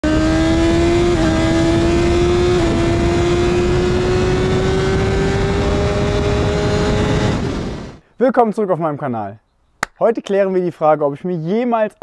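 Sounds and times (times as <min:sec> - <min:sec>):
motorcycle engine accelerating: 0:00.0 - 0:08.0
quick gear upshifts: 0:00.0 - 0:08.0.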